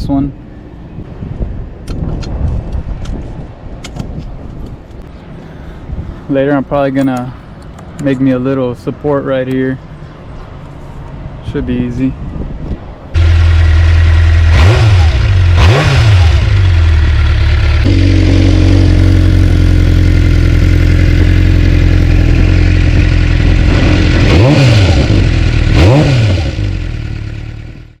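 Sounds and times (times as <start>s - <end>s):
motorcycle engine idling and revving: 13.1s - 28.0s.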